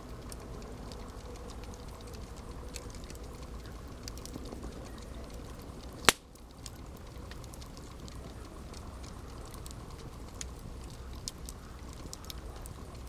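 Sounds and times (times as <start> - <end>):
campfire crackling: 0.0 - 13.0
loud sharp pop of fire: 6.0 - 6.3.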